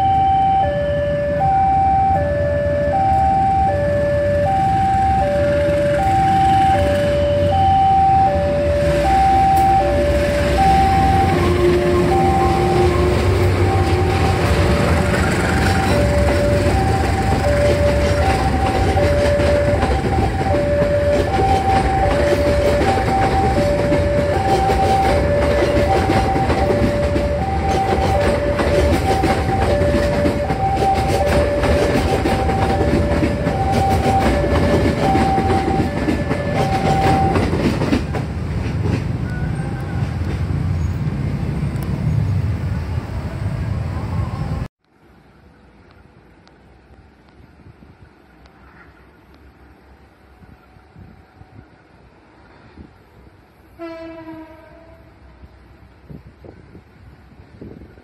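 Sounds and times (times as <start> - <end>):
two-tone warning alarm: 0.0 - 38.0
train wheels clattering over rail joints: 11.2 - 39.3.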